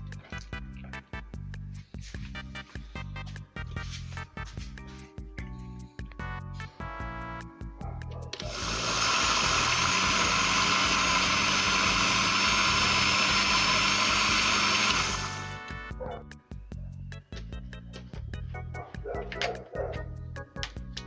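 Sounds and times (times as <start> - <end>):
background music: 0.0 - 9.0, 14.4 - 21.0
electric blender running: 8.4 - 15.6.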